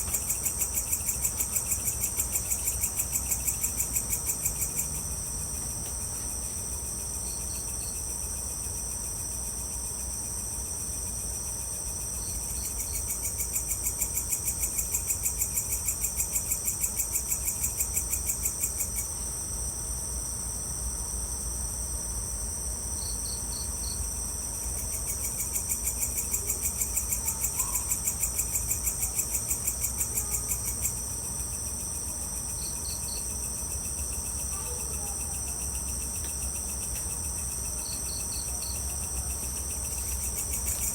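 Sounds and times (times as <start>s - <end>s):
crickets trilling: 0.0s - 40.9s
insect calling in rapid pulses: 23.0s - 40.9s.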